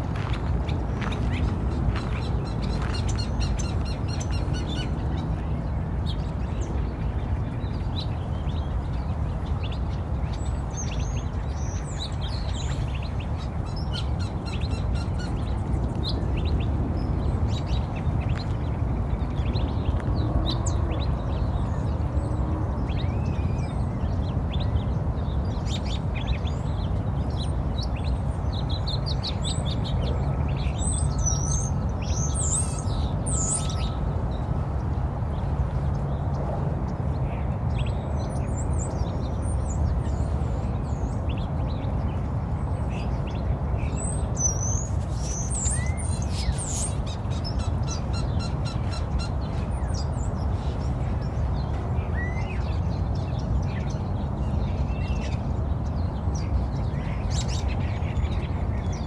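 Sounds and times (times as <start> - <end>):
birds chirping: 0.0 - 22.2, 22.8 - 59.0.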